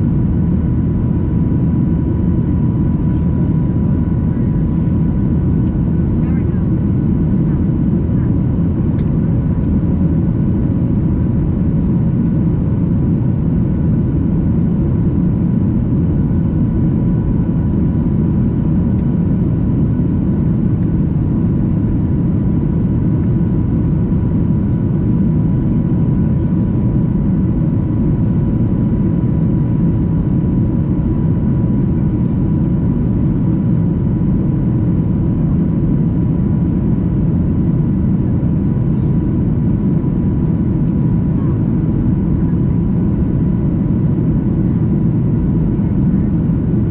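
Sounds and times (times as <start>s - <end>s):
airplane engine drone: 0.0s - 46.9s.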